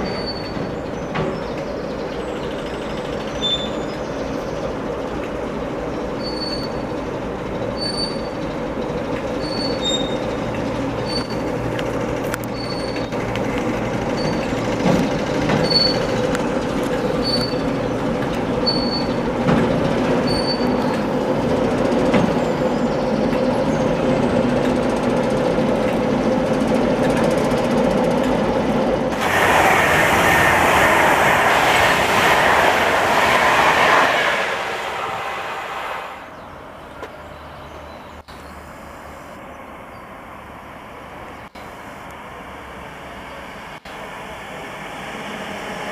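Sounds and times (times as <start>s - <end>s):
train wheel noise: 0.0s - 37.2s
diesel engine hum: 6.8s - 45.9s
loud rushing noise: 29.1s - 36.4s.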